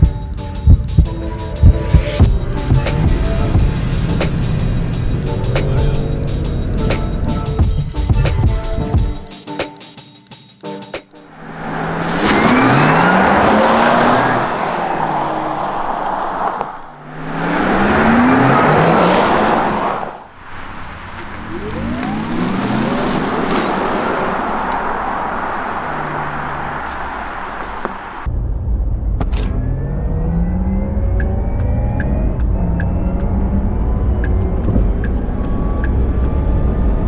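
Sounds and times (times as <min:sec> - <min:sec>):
tyre noise: 0:11.4 - 0:28.3.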